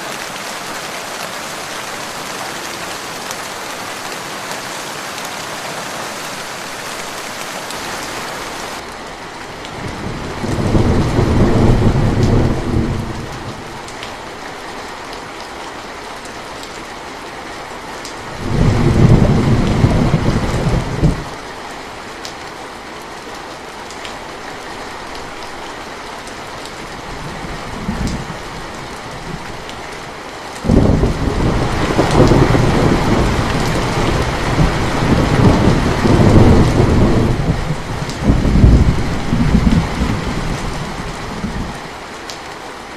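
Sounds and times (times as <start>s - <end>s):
rain falling: 0.0s - 42.9s
thunder rumbling: 9.9s - 13.8s, 18.4s - 21.4s, 30.6s - 41.8s.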